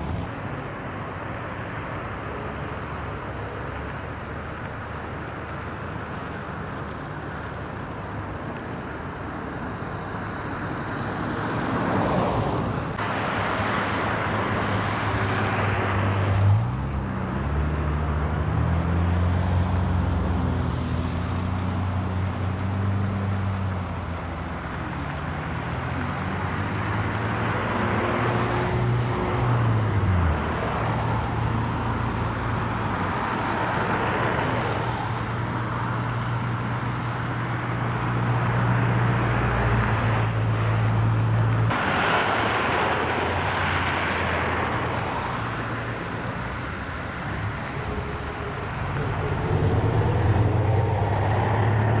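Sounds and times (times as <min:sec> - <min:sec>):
steady low traffic hum: 0:00.0 - 0:52.0.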